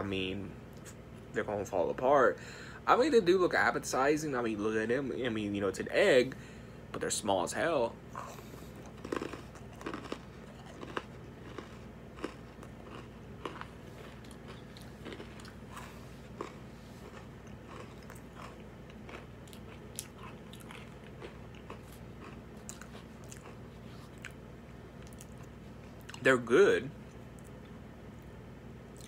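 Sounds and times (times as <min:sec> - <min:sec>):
person chewing cookies: 0:08.1 - 0:26.3
small crunches: 0:08.7 - 0:24.4.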